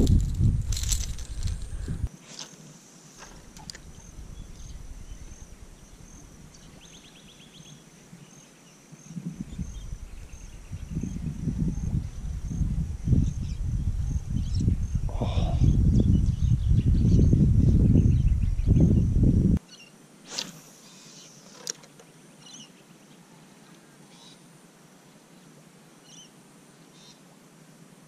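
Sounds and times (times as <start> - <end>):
insect chirping: 0.0 - 2.1, 2.8 - 19.3
wind buffeting microphone: 0.0 - 2.1, 3.4 - 6.8, 9.1 - 19.6.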